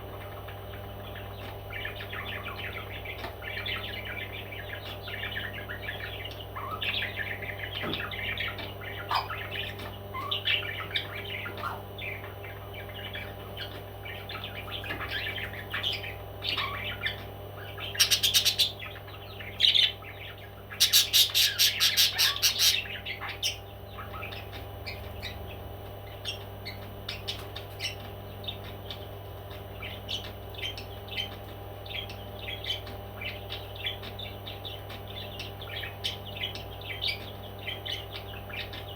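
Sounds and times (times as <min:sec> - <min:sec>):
parrots chirping and chattering: 0:00.0 - 0:38.9
steady low hum: 0:00.0 - 0:38.9
harsh repeated parrot calls: 0:20.8 - 0:22.9.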